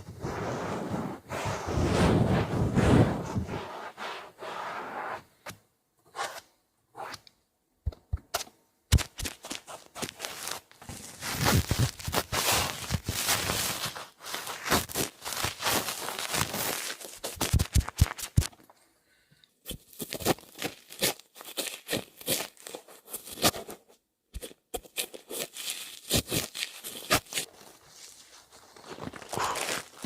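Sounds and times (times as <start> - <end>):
crinkling and scratching: 8.3 - 18.8, 19.6 - 30.0.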